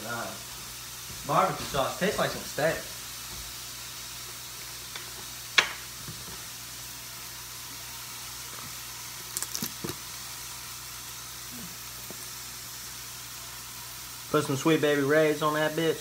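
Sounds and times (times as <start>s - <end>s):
meat sizzling in a pan: 0.0s - 16.0s.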